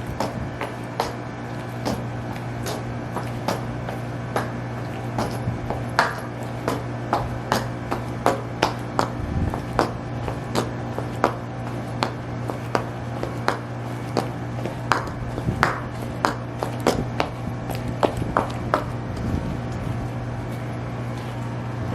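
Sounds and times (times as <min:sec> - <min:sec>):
high heels clicking on hard surface: 0:00.0 - 0:21.5
constant low hum: 0:00.0 - 0:21.9.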